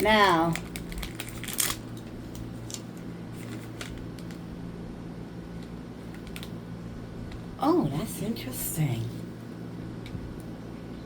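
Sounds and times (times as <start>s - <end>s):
plastic snack packet rustling: 0.0s - 4.4s, 6.0s - 6.6s
packet crackling: 0.0s - 4.5s, 6.0s - 6.6s
low steady hum: 0.0s - 11.0s.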